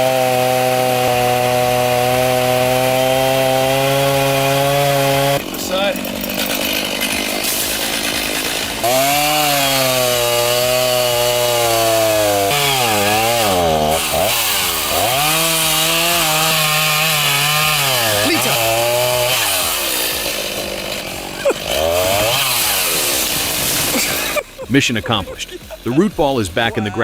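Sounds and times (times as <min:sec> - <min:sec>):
chainsaw cutting wood: 0:00.0 - 0:27.0.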